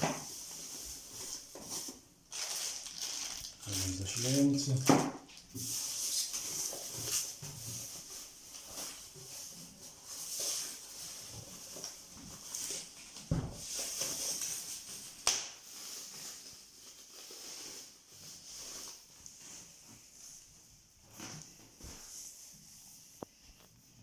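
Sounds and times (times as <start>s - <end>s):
packaging rustling: 0.1s - 18.9s.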